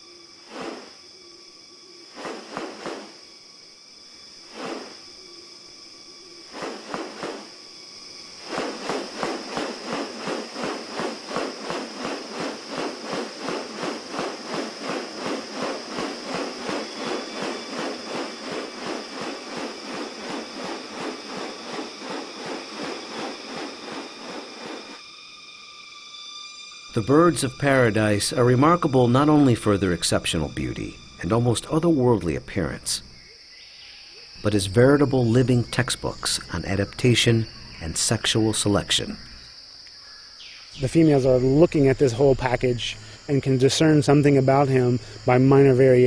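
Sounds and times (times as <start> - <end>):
high insect buzz: 0.0 - 46.0.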